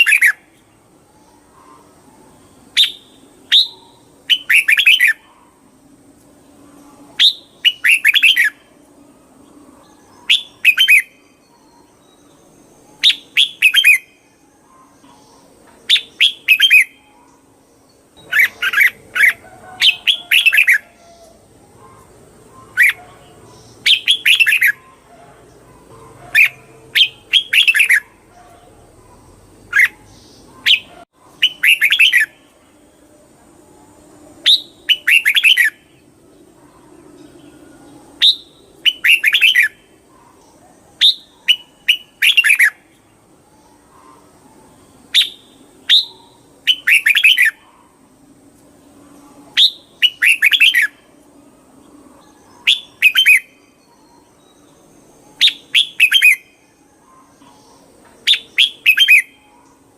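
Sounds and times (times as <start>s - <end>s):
bird singing: 0.0s - 59.9s.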